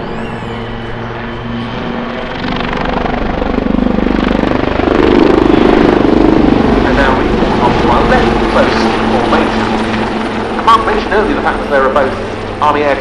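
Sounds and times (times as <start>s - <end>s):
helicopter rotor and turbine: 0.0s - 13.0s.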